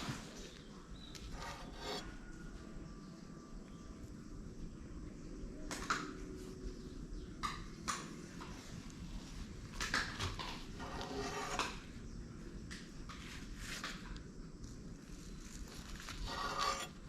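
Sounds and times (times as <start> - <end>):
scraping on hard surface: 1.1 - 2.2, 10.7 - 11.8, 15.9 - 17.0.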